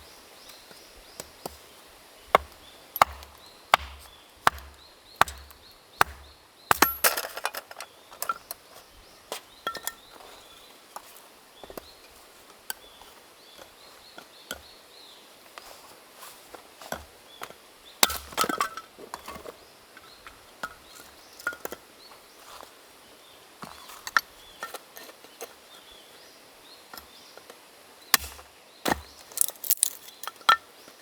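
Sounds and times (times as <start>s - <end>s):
sharp chopping strikes: 2.4s - 7.2s, 28.2s - 29.1s.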